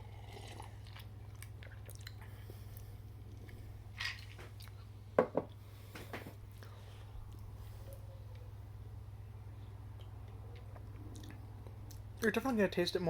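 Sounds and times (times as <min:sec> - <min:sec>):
person sipping a drink: 0:00.0 - 0:04.8
steady low hum: 0:00.0 - 0:13.0.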